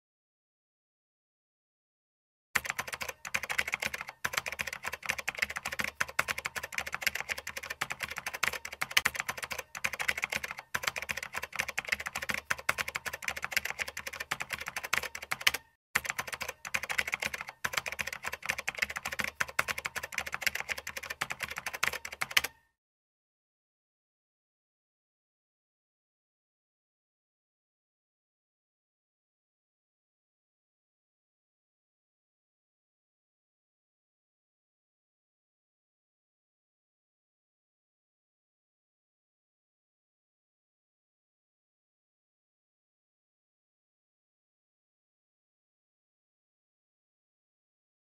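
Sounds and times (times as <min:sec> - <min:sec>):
keyboard typing clicks: 0:02.6 - 0:22.7.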